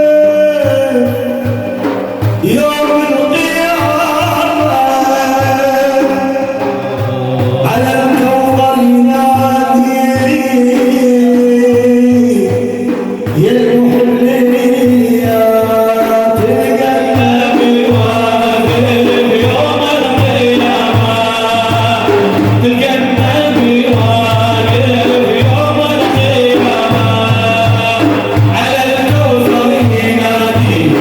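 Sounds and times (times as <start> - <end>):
steady drum beat: 0.0 - 31.0.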